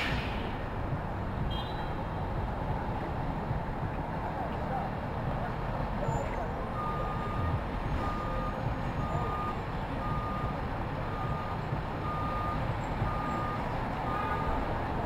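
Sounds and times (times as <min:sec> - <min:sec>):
low rumble of street traffic: 0:00.0 - 0:15.0
reversing alarm beeping: 0:06.7 - 0:14.7.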